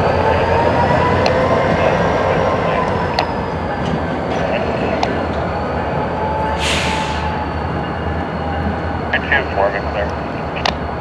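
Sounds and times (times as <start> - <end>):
freight cars rumbling: 0.0 - 11.0
short hiss: 6.6 - 7.2.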